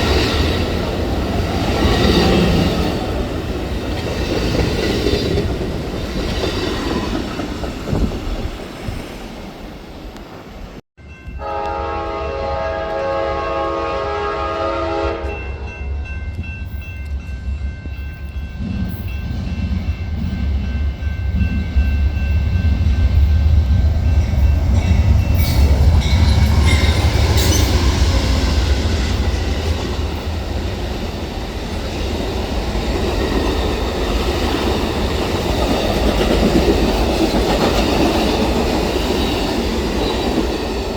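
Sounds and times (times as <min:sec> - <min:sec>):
train rolling past: 0:00.0 - 0:40.9
train horn chord: 0:11.3 - 0:15.7.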